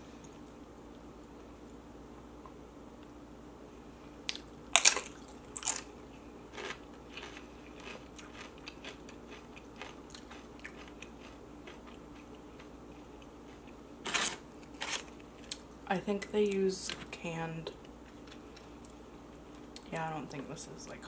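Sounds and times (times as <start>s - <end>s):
chewing crunches: 4.3s - 15.7s
chip crunching: 4.3s - 15.7s.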